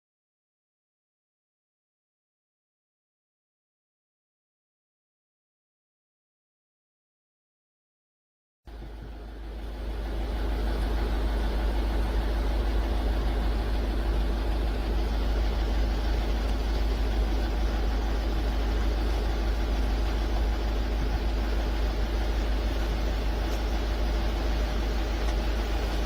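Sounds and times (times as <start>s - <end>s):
low mechanical hum: 8.7s - 26.0s.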